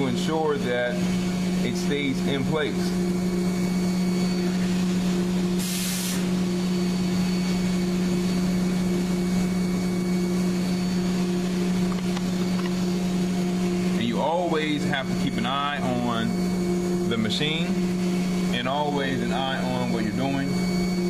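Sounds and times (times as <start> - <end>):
milling machine hum: 0.0 - 21.0
burst of hiss: 5.6 - 6.3.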